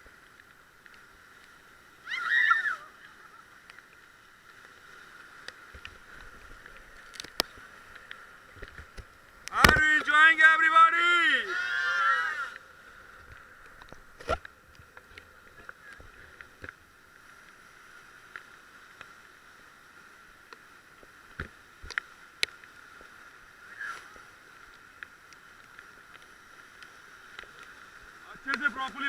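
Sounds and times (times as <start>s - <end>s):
paddle splashes: 0.0s - 18.7s
water washing: 22.8s - 29.0s.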